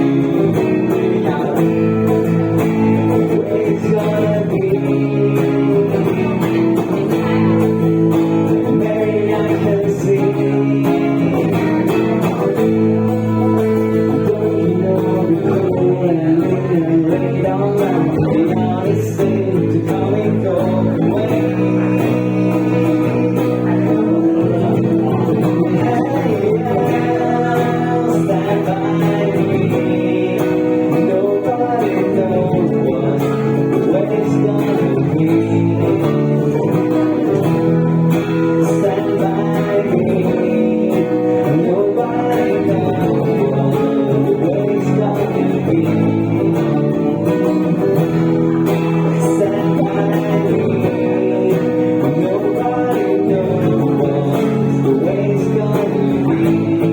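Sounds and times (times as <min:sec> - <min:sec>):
acoustic guitar strumming: 0:00.0 - 0:56.9
person singing: 0:00.0 - 0:56.9.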